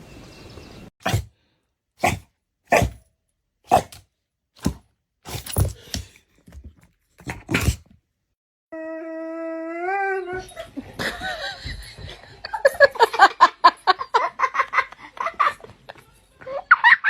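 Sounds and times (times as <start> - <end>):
dog barking: 1.0 - 1.3, 2.0 - 3.0, 3.7 - 4.0.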